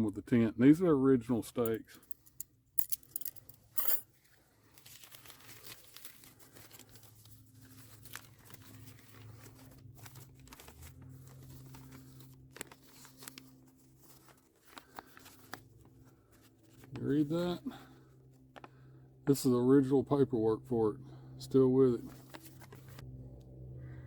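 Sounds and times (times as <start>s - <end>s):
faint steady hum: 0.0s - 24.0s
tent gear rustling: 3.6s - 17.9s.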